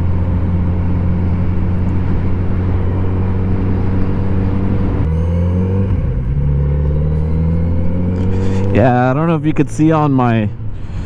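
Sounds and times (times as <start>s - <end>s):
motorcycle engine cruising: 0.0s - 10.3s
rush of riding air: 7.0s - 9.0s.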